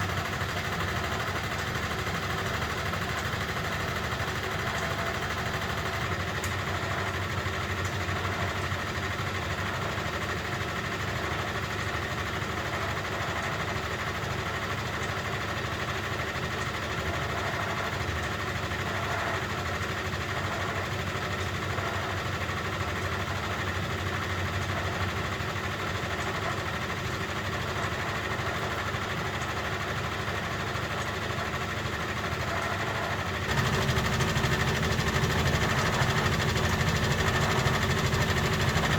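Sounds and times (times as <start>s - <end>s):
washing machine hum and rumble: 0.0s - 38.9s.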